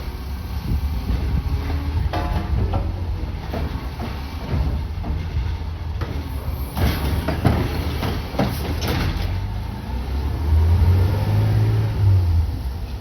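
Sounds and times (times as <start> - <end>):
metal clanks and bangs: 1.2 - 9.4.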